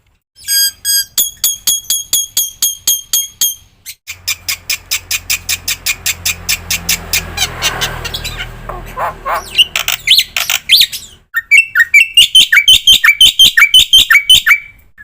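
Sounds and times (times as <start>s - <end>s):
bird singing sharp ringing notes: 0.4s - 4.3s.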